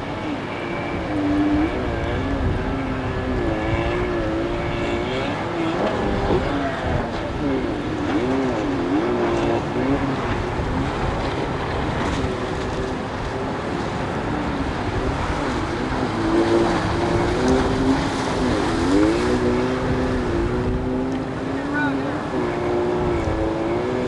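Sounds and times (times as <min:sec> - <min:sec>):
outboard motor running: 0:00.0 - 0:24.0
water noise: 0:00.0 - 0:24.0
wind: 0:00.0 - 0:24.0.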